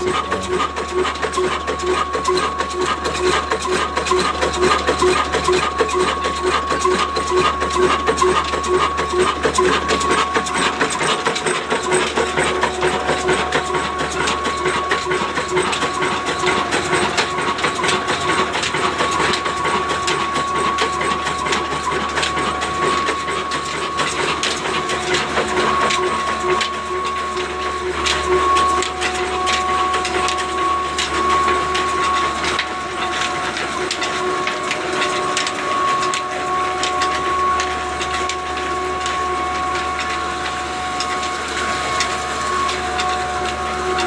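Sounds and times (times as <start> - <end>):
diesel engine clattering: 0.0 - 26.8.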